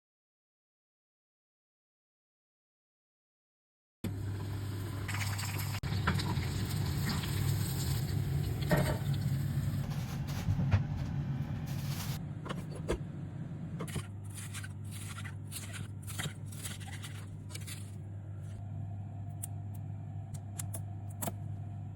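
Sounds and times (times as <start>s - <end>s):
steady low hum: 5.7s - 21.9s
crisp scrapes and clicks: 13.8s - 18.0s.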